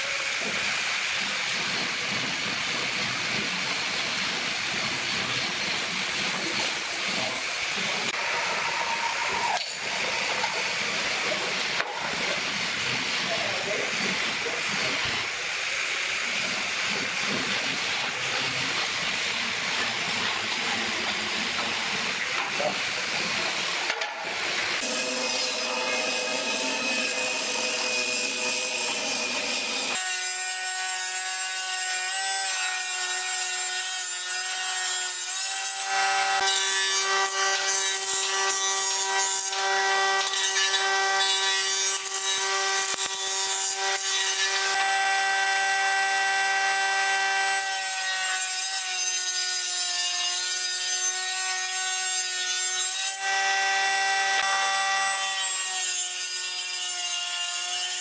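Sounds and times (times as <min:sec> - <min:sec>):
jointer planing wood: 0:24.8 - 0:58.0.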